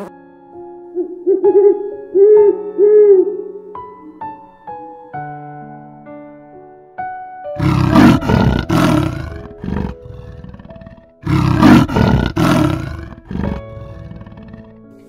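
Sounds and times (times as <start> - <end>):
soft piano music: 0.0 - 15.0
leopard growling: 7.6 - 14.9.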